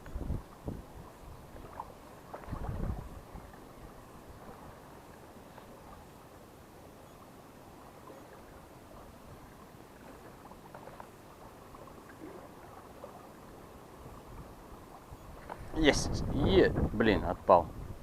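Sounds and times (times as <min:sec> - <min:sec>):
wind buffeting microphone: 0:00.0 - 0:04.8, 0:14.0 - 0:18.0.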